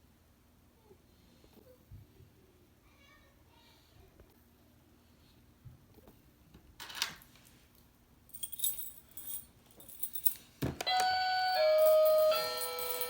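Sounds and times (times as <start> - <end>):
metal keys jangling: 8.3 - 13.0
electronic doorbell chime: 10.9 - 13.0.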